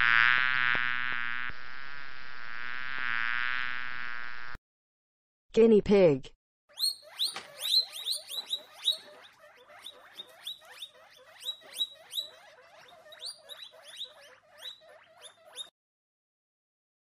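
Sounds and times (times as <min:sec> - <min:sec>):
guinea pigs squeaking: 0:06.7 - 0:15.8.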